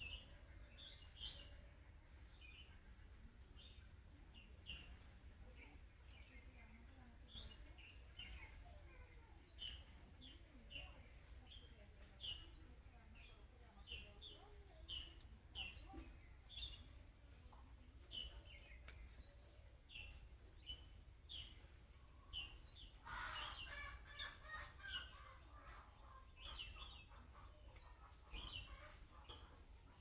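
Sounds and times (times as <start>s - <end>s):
budgerigars chirping: 22.4s - 27.2s.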